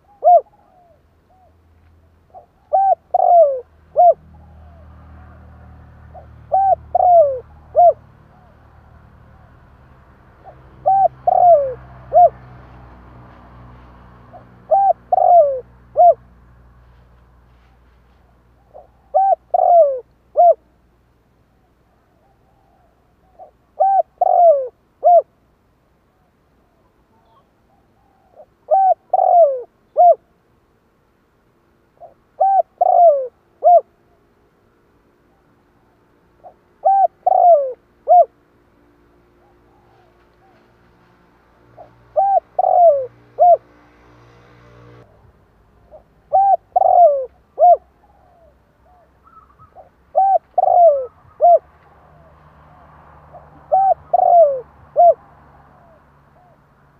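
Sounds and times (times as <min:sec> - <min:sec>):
dove cooing: 0:00.0 - 0:01.6, 0:02.3 - 0:12.5, 0:14.2 - 0:16.3, 0:18.4 - 0:20.7, 0:22.0 - 0:25.3, 0:26.1 - 0:30.3, 0:32.0 - 0:34.2, 0:36.4 - 0:38.4, 0:39.2 - 0:40.8, 0:41.7 - 0:43.8, 0:45.8 - 0:56.8.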